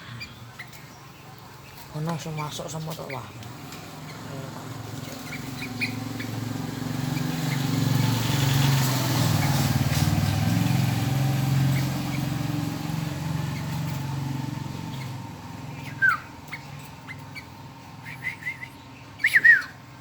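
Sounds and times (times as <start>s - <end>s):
vehicle engine passing by: 3.3s - 18.7s.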